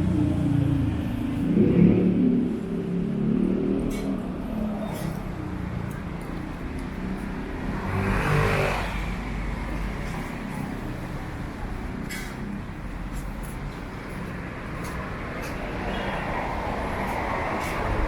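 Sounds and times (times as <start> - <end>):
city street traffic: 0.0 - 18.0
motor vehicle passing close: 7.4 - 10.4.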